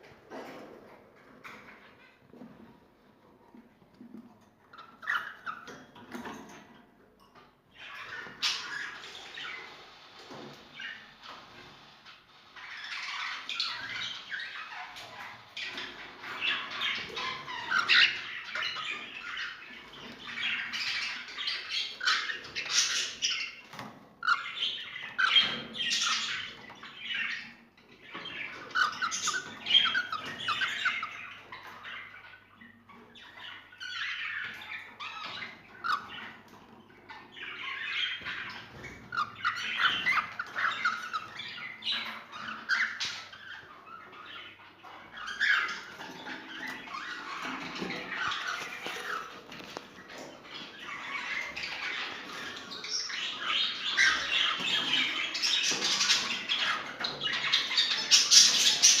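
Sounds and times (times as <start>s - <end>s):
birds chattering and squawking: 0.0s - 59.0s.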